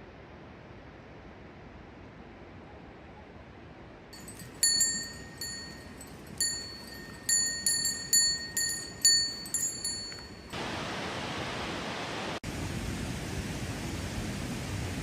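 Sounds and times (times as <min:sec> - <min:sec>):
steady hiss of rain: 0:00.0 - 0:04.1, 0:10.1 - 0:15.0
small metal bell ringing: 0:04.2 - 0:10.6.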